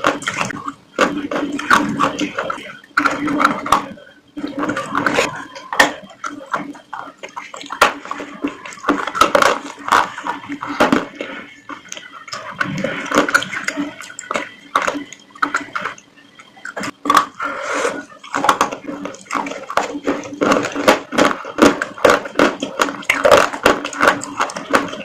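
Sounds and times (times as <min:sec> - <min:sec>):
wet chewing and slurping: 0:00.0 - 0:25.0.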